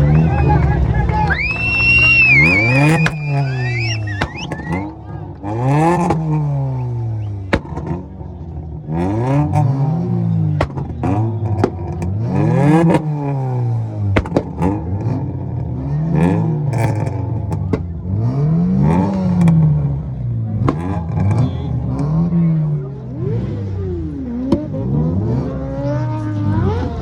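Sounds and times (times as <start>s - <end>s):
car engines revving: 0.0s - 27.0s
exhaust pops: 1.0s - 22.4s.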